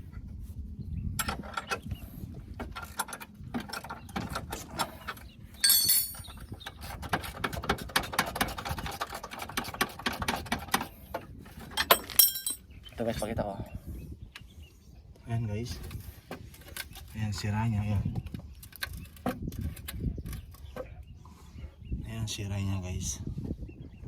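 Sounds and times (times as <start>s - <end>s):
metallic clatter and ringing: 5.6s - 6.4s, 11.8s - 12.6s.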